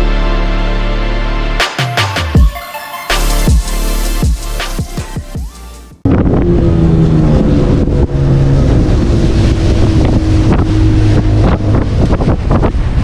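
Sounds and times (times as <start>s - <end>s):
speedboat engine running: 4.4s - 13.0s
wind on microphone: 6.0s - 13.0s.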